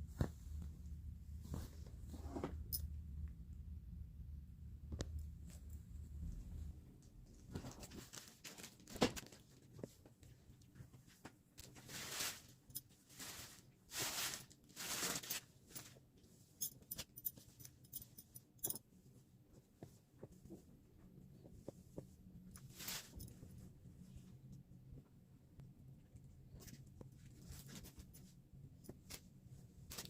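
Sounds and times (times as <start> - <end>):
plastic packaging rustling: 7.7 - 9.4, 13.1 - 15.8.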